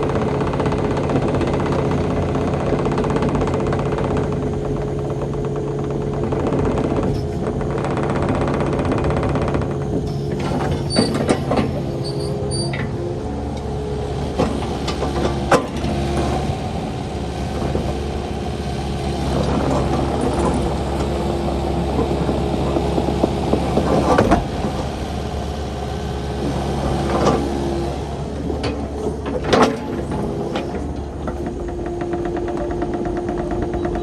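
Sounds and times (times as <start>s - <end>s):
excavator diesel engine running: 0.0s - 34.0s
sharp machine knocks: 9.9s - 27.5s.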